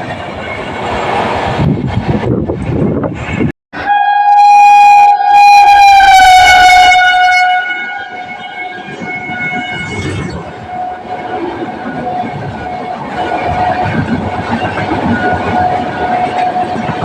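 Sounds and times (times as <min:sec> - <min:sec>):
train rumble: 0:00.0 - 0:17.0
locomotive horn blast: 0:03.8 - 0:11.1.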